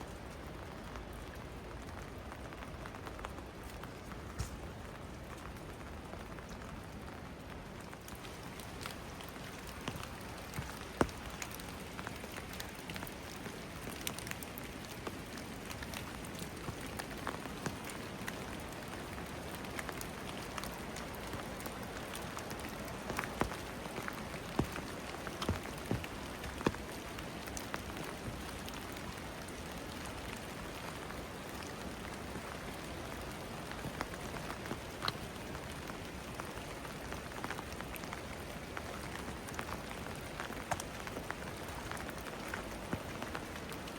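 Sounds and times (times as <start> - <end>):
steady rain falling: 0.0 - 43.9
raindrops tapping: 8.0 - 29.5.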